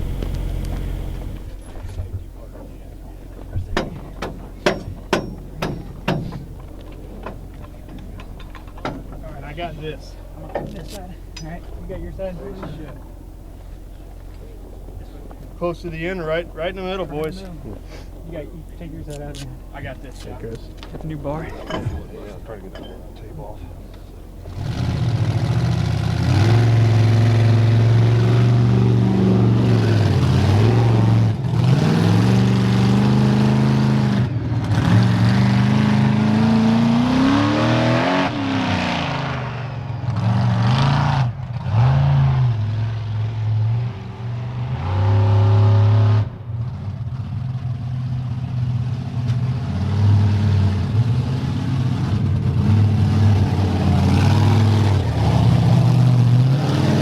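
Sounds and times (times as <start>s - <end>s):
monster truck engine revving: 0.0s - 1.6s, 24.4s - 57.0s.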